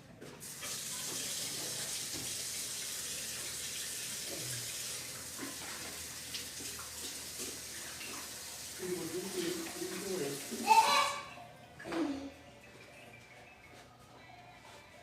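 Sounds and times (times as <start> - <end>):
water running from a tap: 0.4 - 11.2.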